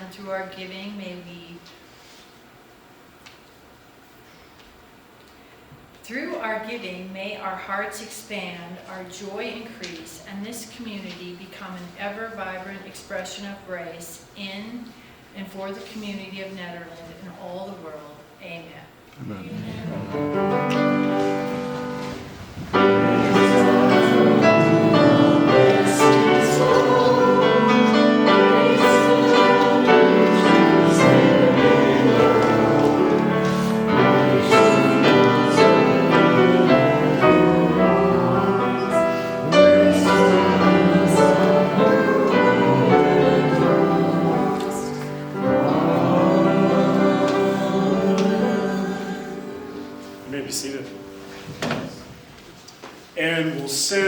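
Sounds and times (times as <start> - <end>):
voices singing a hymn: 19.2 - 52.1
piano accompaniment: 19.6 - 52.4.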